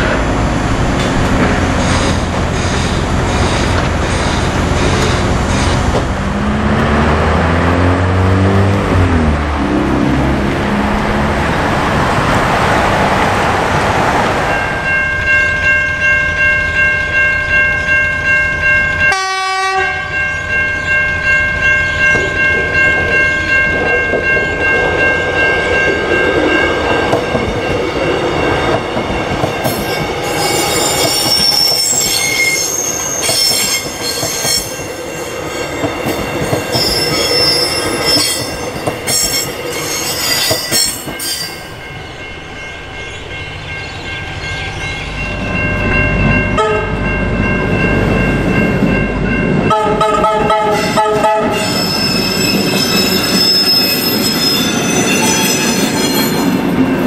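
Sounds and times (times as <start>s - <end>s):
crossing warning bells ringing: 0.0s - 13.4s, 14.3s - 57.0s
cars passing: 0.0s - 15.3s
train rumbling on rails: 0.0s - 57.0s
train wheels squealing: 29.7s - 41.8s, 50.8s - 56.7s.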